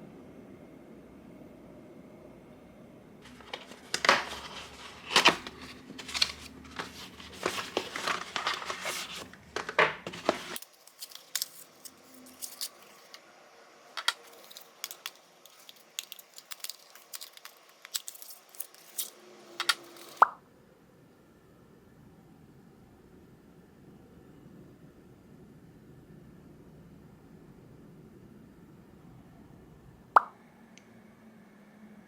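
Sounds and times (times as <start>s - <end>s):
rustling and crinkling: 3.2s - 13.2s, 14.0s - 20.2s.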